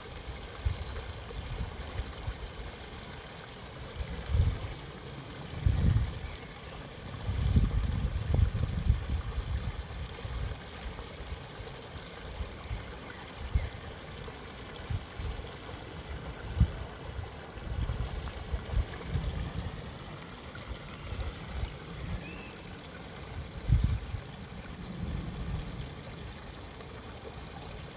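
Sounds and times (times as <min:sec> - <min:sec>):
running water: 0:00.0 - 0:27.9
faint bird chirp: 0:12.6 - 0:14.0, 0:21.0 - 0:22.8.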